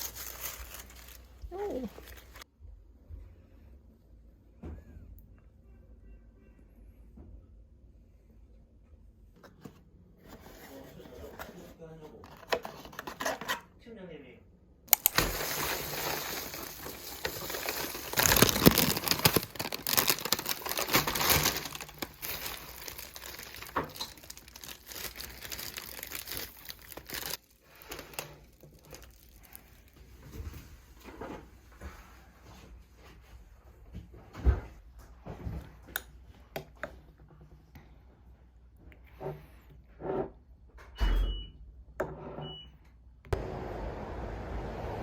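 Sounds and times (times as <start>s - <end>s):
gift wrapping crinkling and tearing: 0.0s - 2.4s, 14.9s - 30.1s.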